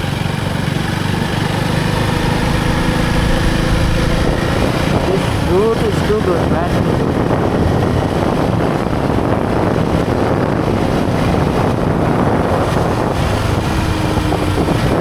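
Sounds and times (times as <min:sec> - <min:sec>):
motorcycle engine: 0:00.0 - 0:15.0
road noise: 0:00.0 - 0:15.0
wind buffeting microphone: 0:00.0 - 0:15.0.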